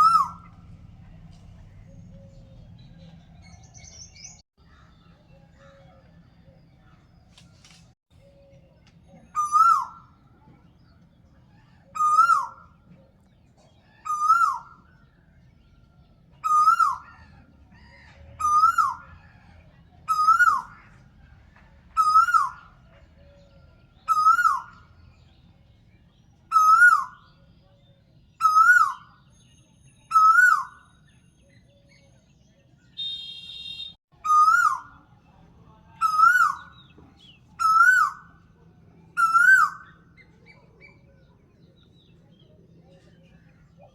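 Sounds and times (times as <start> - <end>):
bird whistling call: 0.0 - 0.6, 9.3 - 10.2, 11.9 - 12.8, 20.1 - 20.7, 24.1 - 24.8, 26.5 - 27.3, 28.4 - 32.0, 32.9 - 35.0, 37.6 - 38.2, 39.2 - 40.0.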